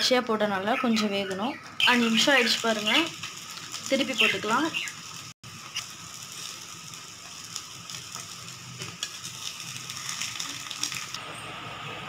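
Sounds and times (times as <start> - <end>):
food sizzling in hot oil: 1.8 - 11.2.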